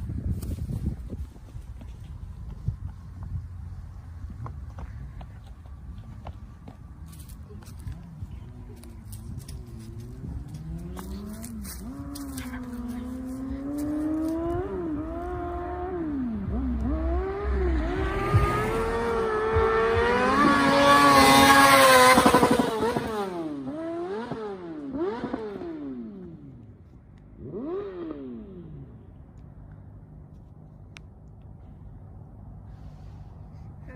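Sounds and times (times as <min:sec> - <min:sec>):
motorcycle accelerating through gears: 0:08.0 - 0:29.4.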